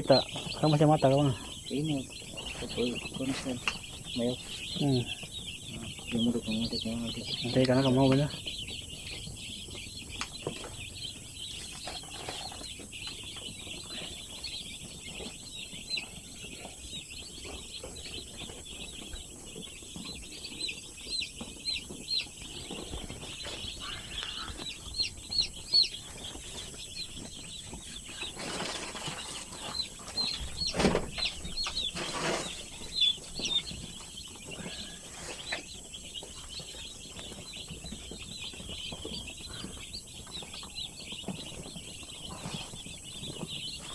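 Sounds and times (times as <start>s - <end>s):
chicks peeping: 0.0s - 43.9s.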